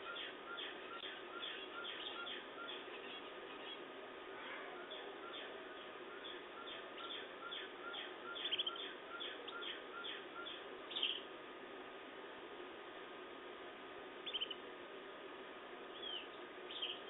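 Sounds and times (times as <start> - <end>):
bird trills: 0.0 - 3.8, 4.4 - 11.2, 14.2 - 14.6, 15.9 - 17.0
canaries chirping: 0.0 - 3.8, 4.5 - 11.2, 14.2 - 14.6, 15.9 - 17.0
faint steady hum: 0.0 - 17.0.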